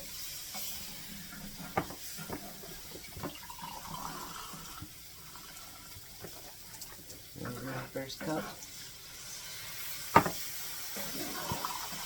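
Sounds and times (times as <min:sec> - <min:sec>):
broth being poured: 0:00.0 - 0:12.0
kitchenware clinking: 0:01.4 - 0:03.5, 0:10.1 - 0:12.0.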